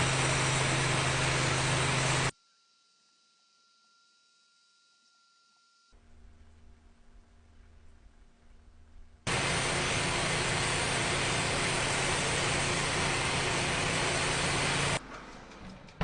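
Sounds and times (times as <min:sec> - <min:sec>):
power tool motor hissing: 0:00.0 - 0:02.3, 0:09.3 - 0:15.0.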